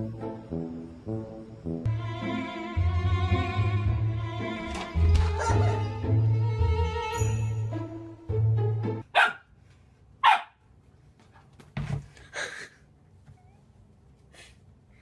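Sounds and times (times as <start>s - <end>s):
string music: 0.0s - 9.0s
dog barking: 5.3s - 5.9s, 9.1s - 9.5s, 10.2s - 10.6s.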